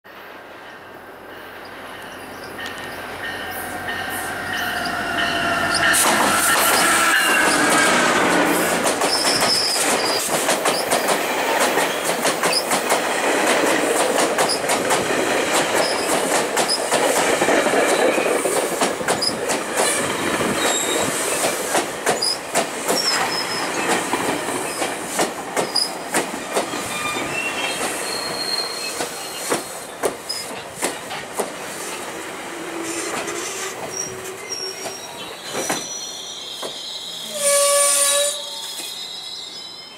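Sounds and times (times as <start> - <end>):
diesel locomotive whine: 0.2 - 9.9, 31.0 - 39.9
wheels clicking over rail joints: 5.8 - 26.9, 29.0 - 31.6.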